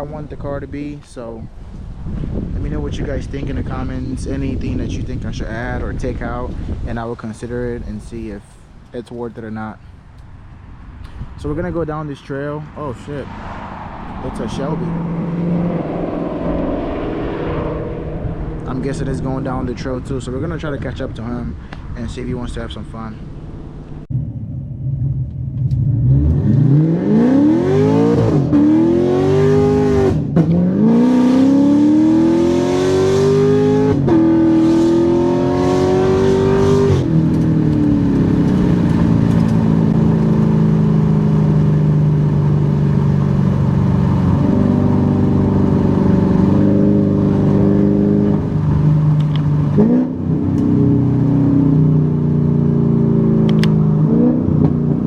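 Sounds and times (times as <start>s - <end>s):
car engine accelerating: 12.7s - 21.8s, 22.5s - 55.0s.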